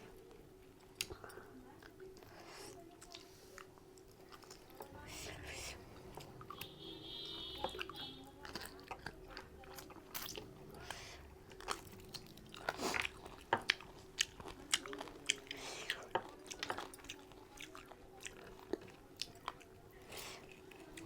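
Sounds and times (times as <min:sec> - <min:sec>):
person chewing and lip-smacking: 0:07.4 - 0:21.0.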